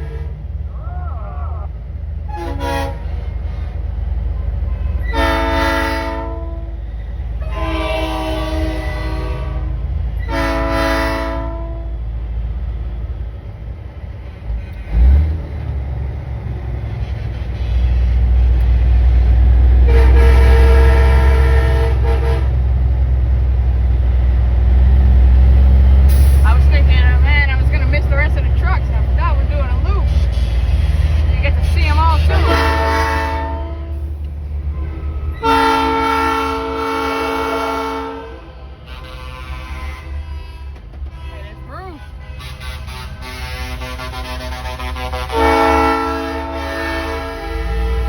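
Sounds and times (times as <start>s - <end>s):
truck train horn blasts: 0.0s - 0.5s, 2.2s - 12.1s, 17.1s - 22.8s, 26.1s - 48.0s
diesel engine running: 0.0s - 48.0s.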